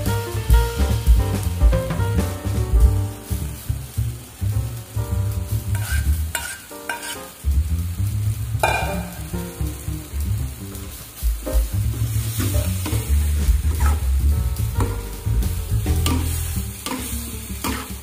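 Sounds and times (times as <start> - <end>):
vegetables sizzling in a wok: 0.0 - 18.0
metal spoon scraping a pot: 5.7 - 7.2.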